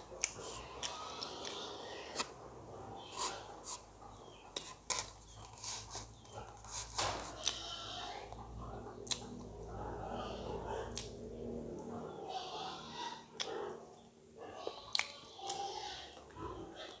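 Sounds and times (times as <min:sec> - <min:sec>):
chewing soft food: 0:00.0 - 0:02.4, 0:08.3 - 0:12.0, 0:14.5 - 0:17.0.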